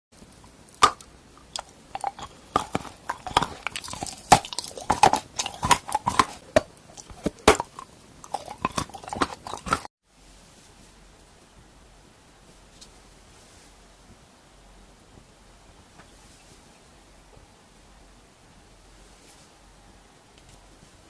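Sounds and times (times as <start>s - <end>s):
person chewing crunchy treat: 0.2s - 9.9s.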